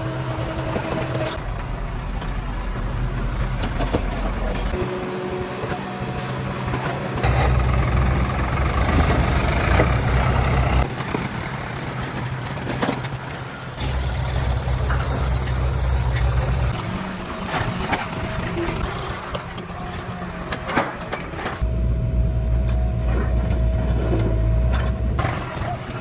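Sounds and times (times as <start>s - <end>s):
diesel engine running: 0.0s - 12.6s, 13.4s - 26.0s.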